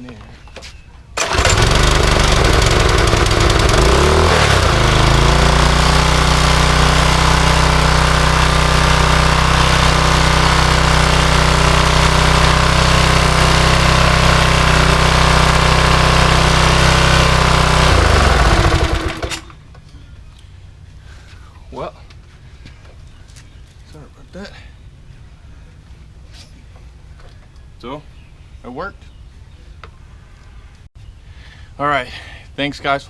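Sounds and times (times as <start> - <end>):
small engine running: 1.2 - 19.6.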